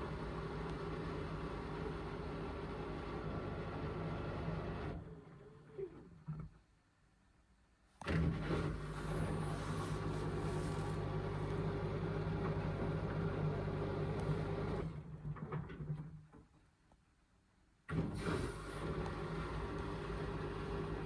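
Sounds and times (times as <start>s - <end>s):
washing machine hum: 0.0s - 5.7s, 8.3s - 16.3s, 17.9s - 21.0s.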